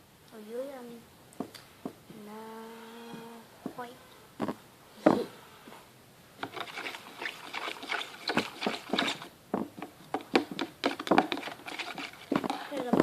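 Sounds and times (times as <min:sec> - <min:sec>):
spoon stirring glue in container: 0:06.4 - 0:13.0.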